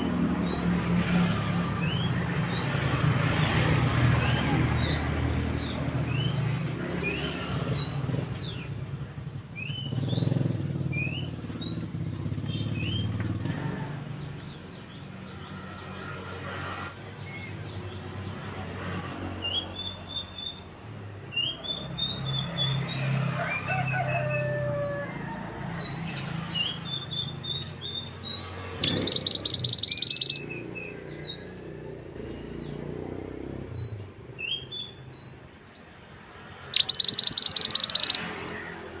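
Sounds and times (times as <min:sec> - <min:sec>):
songbird chirping and warbling: 0:00.0 - 0:08.9, 0:09.6 - 0:39.0
fast bird trill: 0:26.6 - 0:32.3, 0:36.5 - 0:39.0.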